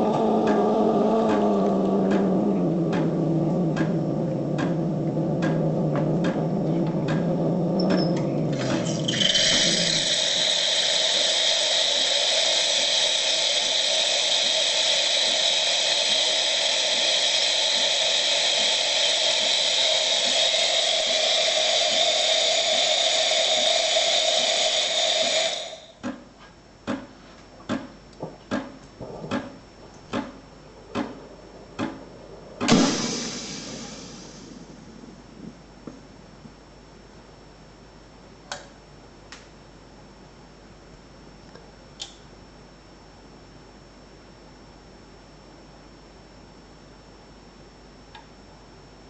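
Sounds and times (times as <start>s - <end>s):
espresso machine hissing: 7.8s - 26.0s, 32.7s - 34.9s.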